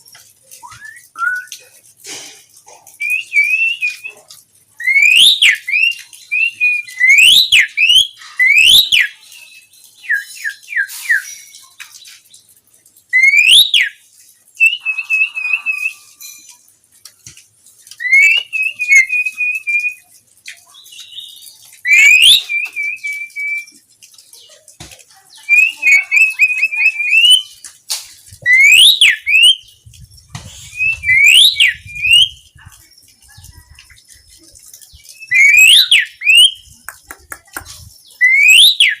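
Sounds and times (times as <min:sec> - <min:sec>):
bird singing whistled phrases: 0:00.6 - 0:01.6, 0:03.0 - 0:04.1, 0:04.8 - 0:11.6, 0:13.1 - 0:14.0, 0:14.6 - 0:16.2, 0:18.0 - 0:20.1, 0:20.9 - 0:23.8, 0:25.3 - 0:27.6, 0:28.4 - 0:29.6, 0:30.6 - 0:32.6, 0:35.0 - 0:36.8, 0:38.1 - 0:39.0.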